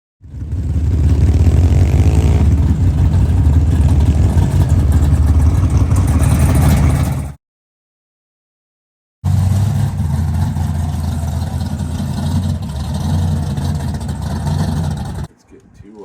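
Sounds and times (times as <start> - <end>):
car engine pulsing exhaust: 0.2 - 7.4, 9.3 - 15.4.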